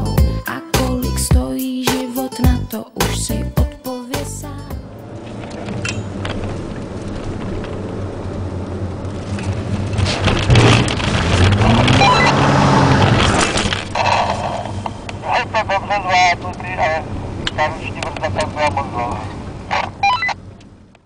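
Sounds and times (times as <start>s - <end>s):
car engine accelerating: 4.6s - 21.0s
tyre noise on wet road: 4.9s - 15.2s.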